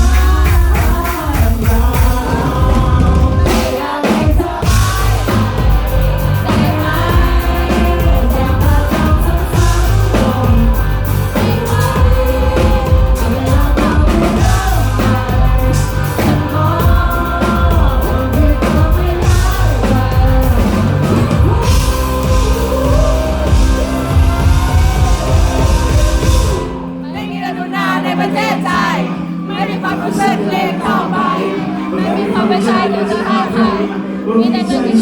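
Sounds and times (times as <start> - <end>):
drums: 0.0 - 26.9
bass: 0.0 - 27.2
guitars: 0.0 - 35.0
male singer: 0.0 - 35.0.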